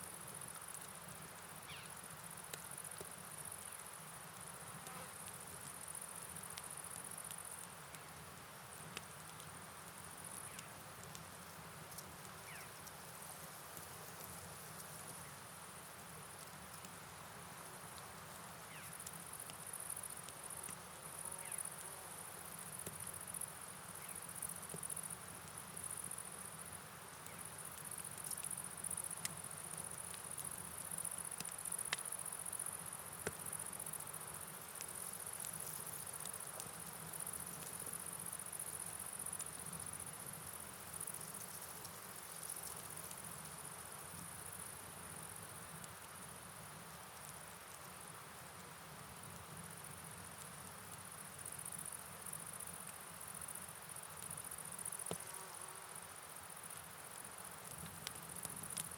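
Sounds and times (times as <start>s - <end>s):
rain hiss: 0.0s - 58.9s
faint clicks: 8.9s - 11.3s, 27.2s - 32.1s, 57.6s - 58.9s
crickets chirping: 11.9s - 58.9s.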